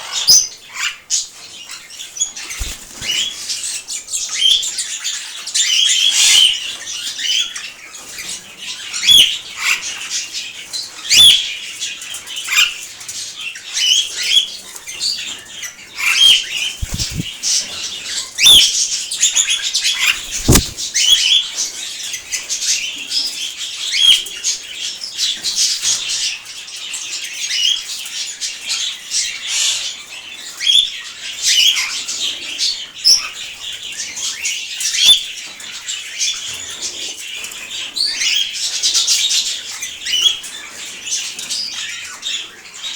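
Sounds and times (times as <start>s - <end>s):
wing flutters: 2.6s - 3.2s, 16.8s - 17.4s, 20.0s - 21.0s
birds chirping and calling: 16.8s - 17.4s.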